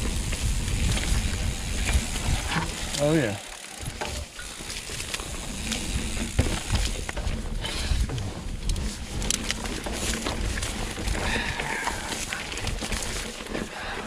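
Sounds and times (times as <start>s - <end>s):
wind buffeting microphone: 0.0s - 3.1s
bike rattling over bumps: 0.0s - 14.0s
bike tyres rumbling on dirt: 0.0s - 14.0s.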